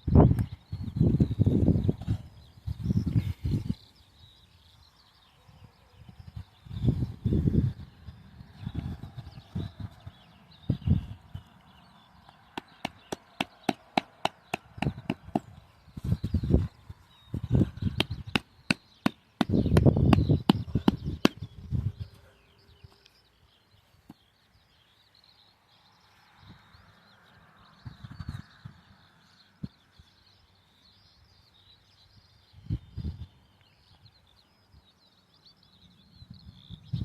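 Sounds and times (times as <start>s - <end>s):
tent peg being hammered: 12.6s - 15.6s, 18.0s - 21.5s.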